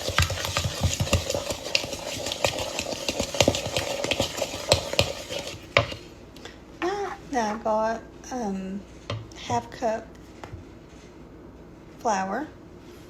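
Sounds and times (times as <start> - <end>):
batter being stirred in a bowl: 0.0 - 6.2.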